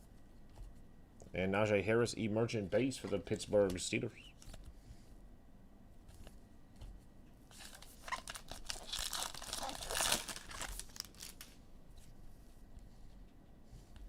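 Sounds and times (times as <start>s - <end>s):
foil wrapper tearing and crinkling: 7.5s - 11.6s.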